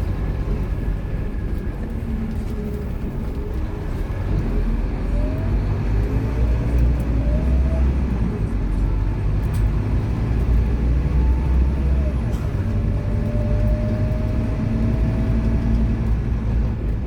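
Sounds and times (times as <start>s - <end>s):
bus diesel engine rumble: 0.0s - 17.0s.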